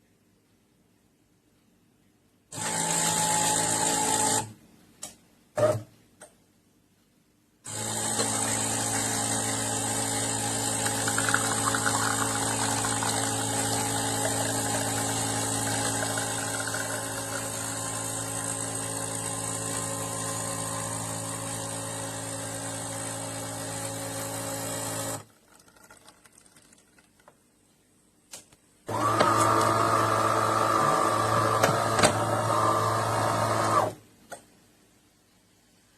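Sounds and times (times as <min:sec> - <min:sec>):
espresso machine humming: 0:07.7 - 0:25.2, 0:28.9 - 0:33.9.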